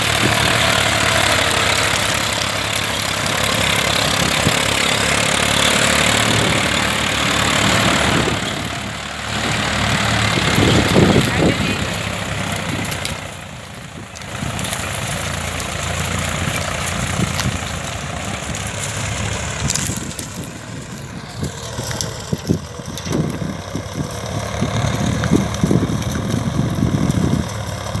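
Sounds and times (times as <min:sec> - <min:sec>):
tractor diesel engine idling: 0:00.0 - 0:28.0
sharp clicks: 0:11.9 - 0:24.2.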